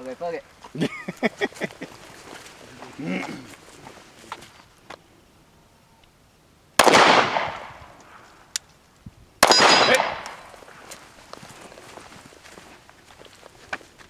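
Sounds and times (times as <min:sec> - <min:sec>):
handgun shots with echo: 0:06.8 - 0:08.0, 0:09.4 - 0:10.6.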